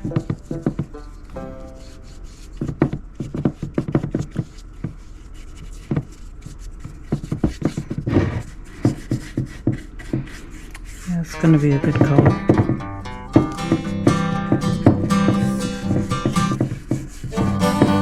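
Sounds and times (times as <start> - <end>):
hands tapping and scraping wood: 2.5 - 11.0.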